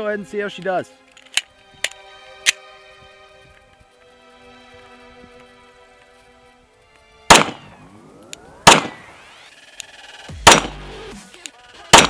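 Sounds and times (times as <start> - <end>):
pistol shots with echo: 7.3 - 7.7, 8.6 - 9.1, 10.4 - 10.8.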